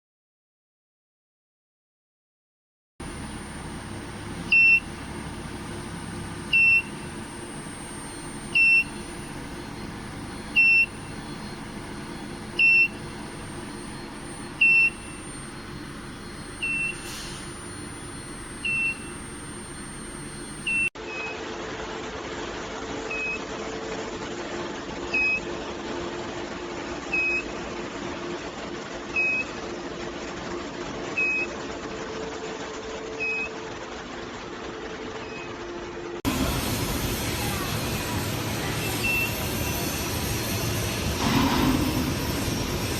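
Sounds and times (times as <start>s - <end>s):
low steady hum: 3.0s - 20.9s
machinery hum: 3.0s - 42.9s
short high electronic beep: 3.2s - 21.4s, 38.8s - 39.9s.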